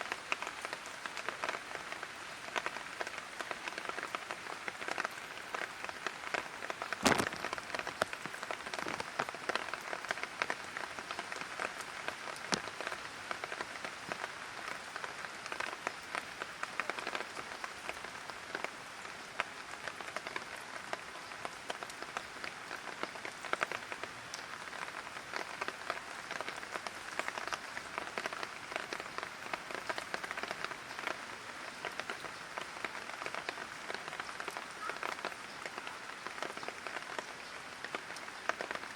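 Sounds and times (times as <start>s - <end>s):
light rain pattering: 0.0s - 38.9s.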